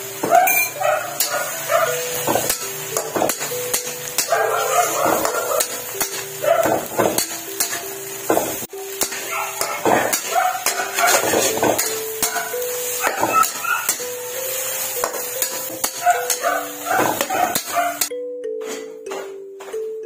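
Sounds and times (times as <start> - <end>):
background music melody: 0.0 - 20.0
metal spatula scraping a wok: 9.0 - 19.8.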